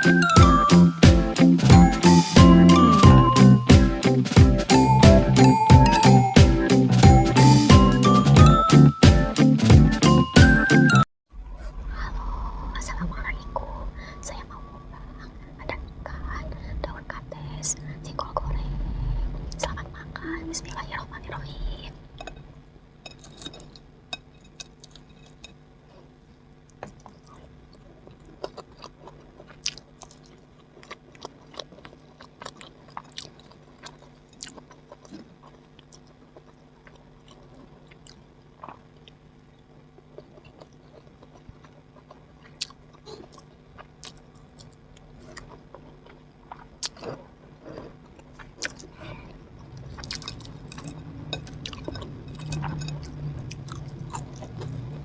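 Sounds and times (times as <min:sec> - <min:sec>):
chewing mouth sounds: 0:26.7 - 0:39.2, 0:40.0 - 0:55.0.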